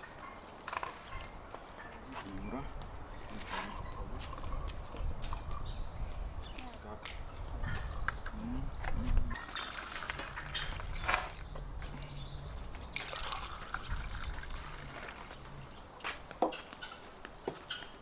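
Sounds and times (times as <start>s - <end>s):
liquid trickling and pouring: 9.3s - 15.6s.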